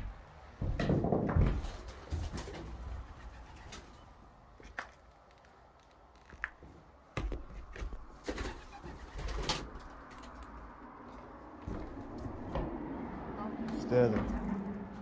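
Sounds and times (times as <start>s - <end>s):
sharp knocks and crunches: 0.0s - 2.6s.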